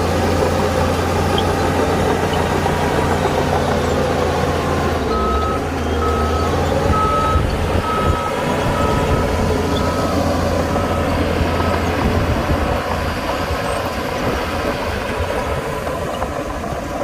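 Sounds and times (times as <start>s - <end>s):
diesel engine rumbling: 0.0s - 17.0s
reversing alarm beeping: 4.9s - 11.8s.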